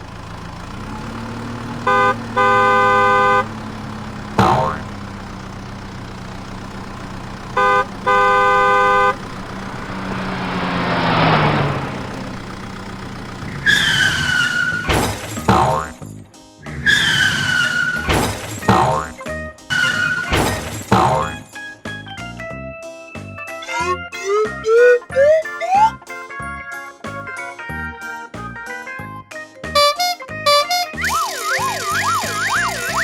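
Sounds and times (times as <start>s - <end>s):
cartoon horn honking: 1.8s - 5.1s, 7.5s - 11.4s, 15.5s - 16.0s, 16.9s - 21.4s, 29.8s - 33.0s
cartoon engine running: 1.8s - 14.4s, 15.1s - 16.0s, 18.0s - 19.2s, 19.9s - 21.4s, 29.8s - 33.0s
whoosh: 9.3s - 12.9s
sliding tones: 30.6s - 33.0s.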